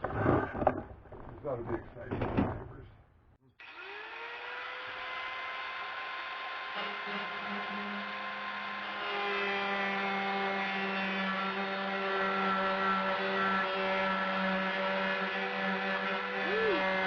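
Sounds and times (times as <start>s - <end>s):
rotary tool cutting sheet steel: 3.6s - 17.0s.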